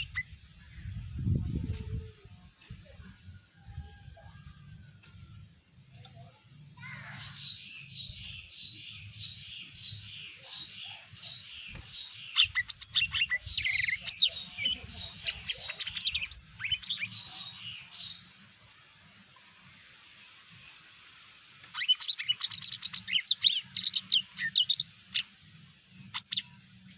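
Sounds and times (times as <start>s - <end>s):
bird sharp chirps and trills: 0.0s - 0.4s, 6.8s - 18.3s, 21.6s - 25.4s, 26.0s - 26.6s.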